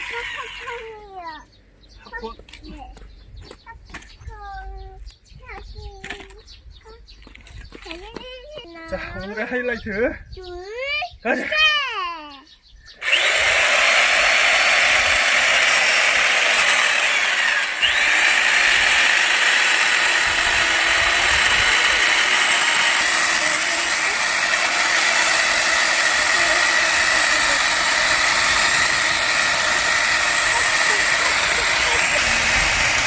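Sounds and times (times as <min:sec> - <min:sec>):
electric chainsaw sawing wood: 0:00.0 - 0:01.0, 0:13.0 - 0:33.0.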